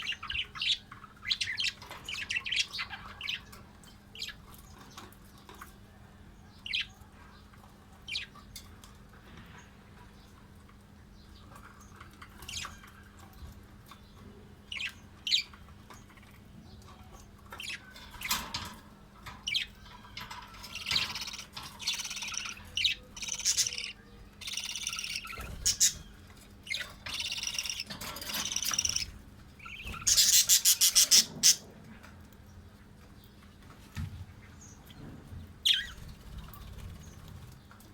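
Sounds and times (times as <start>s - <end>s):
parrots chirping and squawking: 0.0s - 5.1s, 11.5s - 13.4s, 14.7s - 32.0s.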